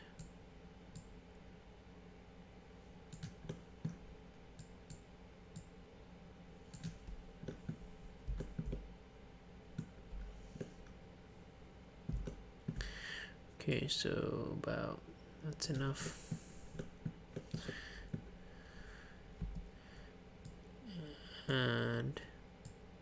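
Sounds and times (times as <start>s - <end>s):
faint steady hum: 0.0s - 23.0s
computer mouse clicks: 0.2s - 1.2s, 3.1s - 4.0s, 4.6s - 5.7s, 6.7s - 8.8s.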